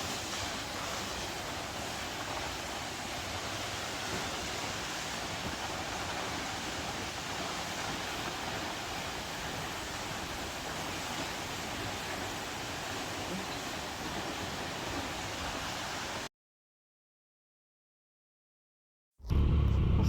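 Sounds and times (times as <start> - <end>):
water rushing from small waterfall: 0.0 - 16.3.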